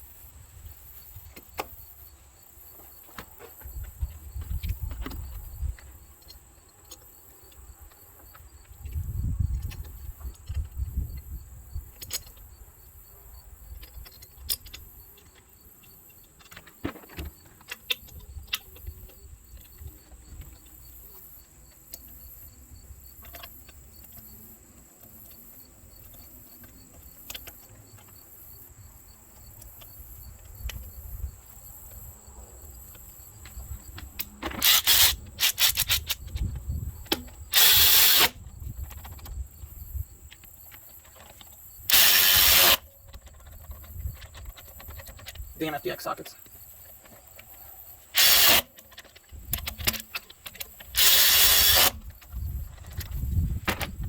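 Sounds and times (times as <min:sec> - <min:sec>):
hand tools clicking and clinking: 0:34.0 - 0:36.4.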